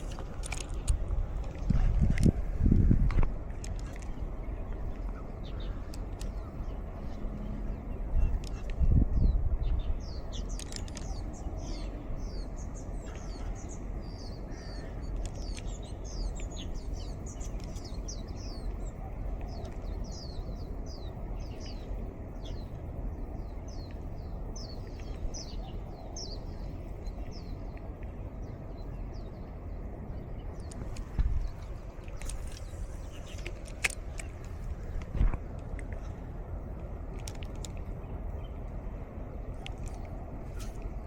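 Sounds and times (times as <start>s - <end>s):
birds chirping: 0.0s - 41.0s
steady breeze: 0.0s - 41.0s.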